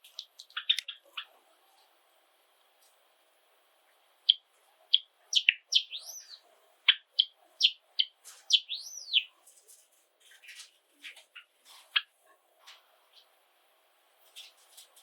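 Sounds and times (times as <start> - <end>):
sparrow whistled notes: 5.4 - 6.4, 8.5 - 9.3.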